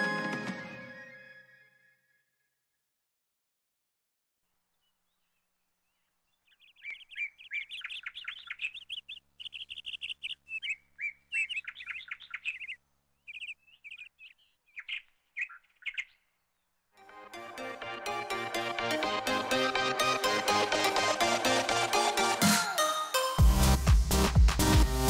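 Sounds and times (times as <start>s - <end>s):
birds chirping: 4.7s - 16.9s.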